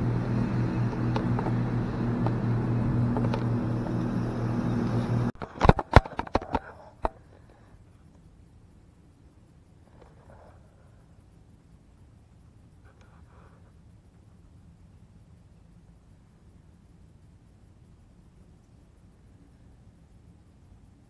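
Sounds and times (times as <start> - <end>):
outboard motor running: 0.0 - 5.3
sharp clicks and knocks: 0.9 - 1.6, 5.4 - 7.2.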